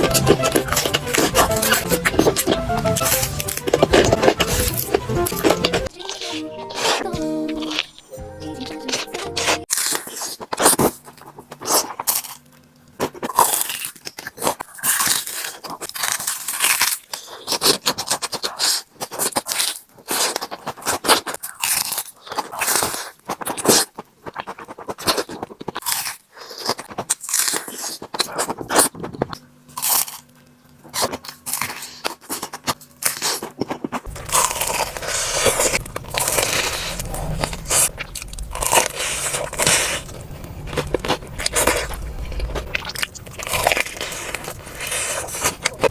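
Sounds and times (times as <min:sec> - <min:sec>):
crunching and chewing: 0:00.0 - 0:45.9
steady low hum: 0:34.1 - 0:45.9.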